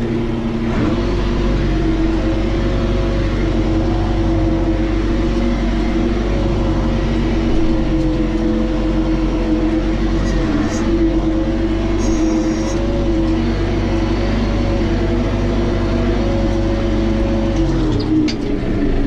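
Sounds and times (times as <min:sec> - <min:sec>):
tractor engine running: 0:00.0 - 0:19.0
thin steady whine: 0:03.5 - 0:15.8.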